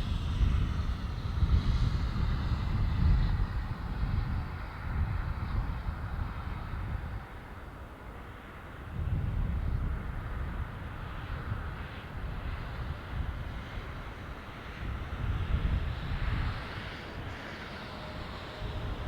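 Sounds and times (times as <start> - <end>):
wind rumbling on microphone: 0.0 - 19.0
jet engines running: 7.1 - 19.0.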